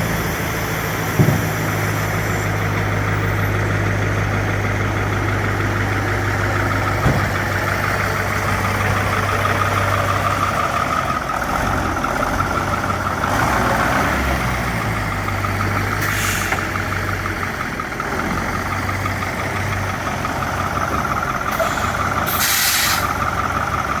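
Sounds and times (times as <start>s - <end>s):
diesel truck engine running: 0.0s - 24.0s
air brake hisses: 16.0s - 16.8s, 21.5s - 23.2s.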